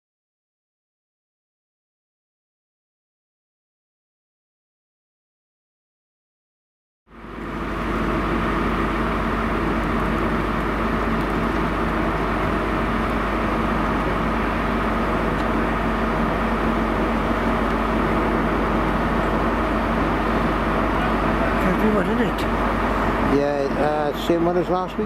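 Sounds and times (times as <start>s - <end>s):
diesel trains droning: 7.1s - 25.0s.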